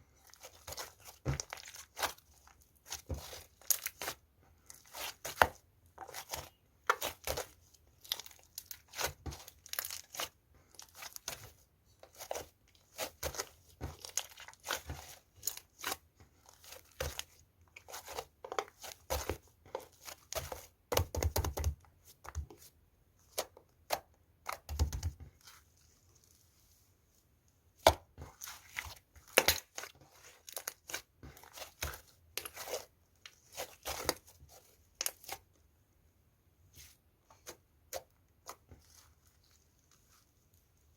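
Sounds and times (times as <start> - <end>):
slime kneaded by hand: 0.1 - 26.6, 27.7 - 35.6.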